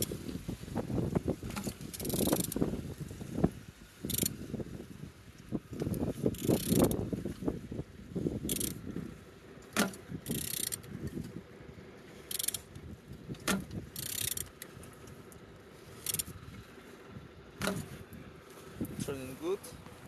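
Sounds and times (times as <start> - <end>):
ratchet wrench clicks: 1.9 - 2.6, 4.0 - 4.4, 5.8 - 7.0, 8.5 - 8.8, 9.8 - 10.9, 12.3 - 12.7, 13.5 - 14.7, 16.0 - 16.4.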